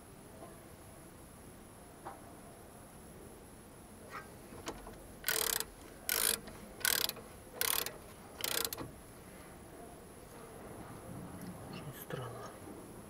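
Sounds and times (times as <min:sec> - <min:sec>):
ratchet wrench rattling: 0:04.8 - 0:08.9.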